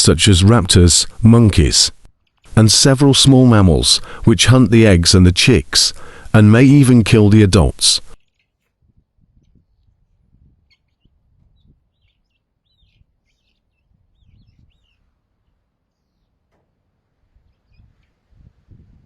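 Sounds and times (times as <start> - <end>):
faint bird chirps: 10.5 - 16.5, 17.3 - 18.2.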